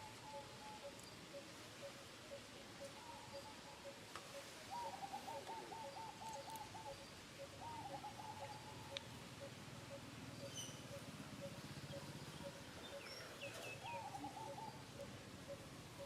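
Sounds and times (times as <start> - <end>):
bird trilling: 4.7 - 16.0.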